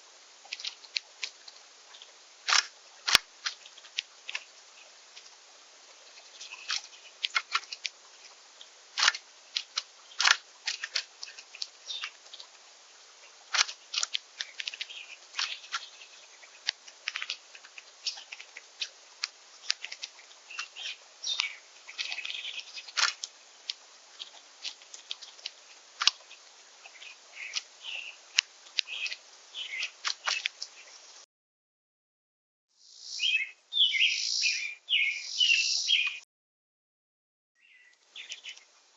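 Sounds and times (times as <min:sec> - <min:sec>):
birds clicking at seed feeder: 0:00.4 - 0:12.6, 0:13.2 - 0:31.0, 0:33.1 - 0:36.2, 0:37.9 - 0:38.7
short high bird chirps: 0:32.8 - 0:36.2.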